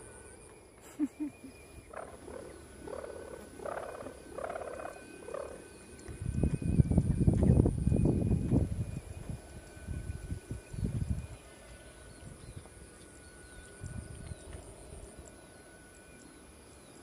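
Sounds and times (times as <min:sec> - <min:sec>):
wavering calls: 0:00.9 - 0:07.7
wind buffeting microphone: 0:06.1 - 0:11.5.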